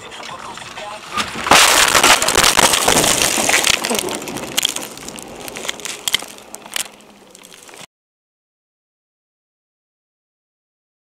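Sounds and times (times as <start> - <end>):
vehicle collision crunching: 0.0 - 7.9
debris cracking: 0.4 - 7.9.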